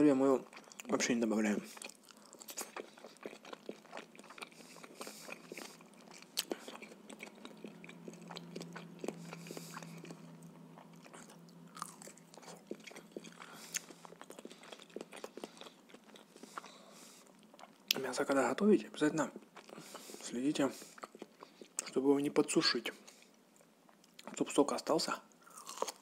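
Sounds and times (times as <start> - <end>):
chewing and biting: 1.7 - 18.0, 20.8 - 22.0, 25.4 - 26.0.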